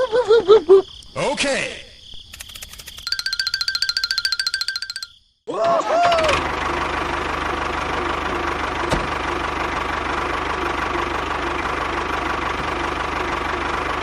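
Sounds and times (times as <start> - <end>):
tractor engine idling: 6.1 - 14.0.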